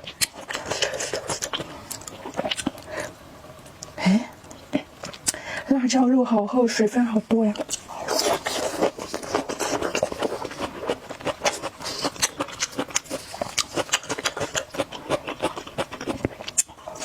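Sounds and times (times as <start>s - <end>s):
wet chewing and mouth smacking: 0.0s - 5.4s, 7.6s - 17.0s.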